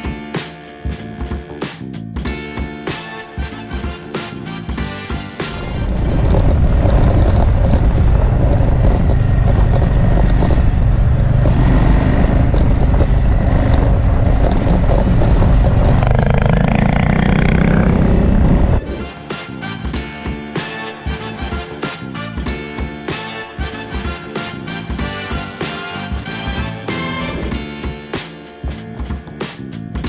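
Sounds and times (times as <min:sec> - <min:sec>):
motorcycle engine: 0:00.0 - 0:19.0
wind rush on microphone: 0:05.5 - 0:19.0.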